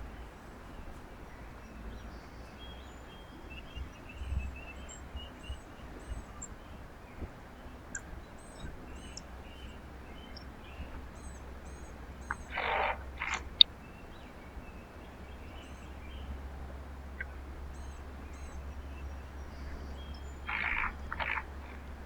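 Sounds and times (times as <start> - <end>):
faint high chirps of small birds: 0.0 - 22.0
harsh raspy bird calls: 7.9 - 13.7, 17.1 - 22.0.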